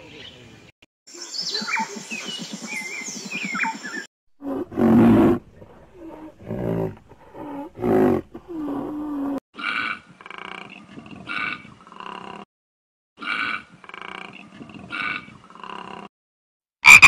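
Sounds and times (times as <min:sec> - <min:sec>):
birds chirping: 0:00.0 - 0:04.1.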